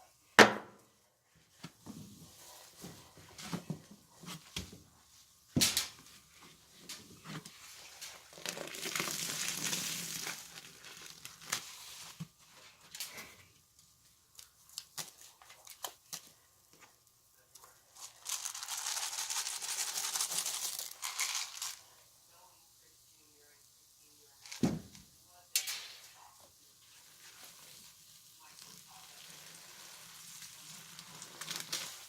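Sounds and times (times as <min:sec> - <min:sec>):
small clicks and squishes: 0:13.8 - 0:21.8, 0:27.3 - 0:32.0.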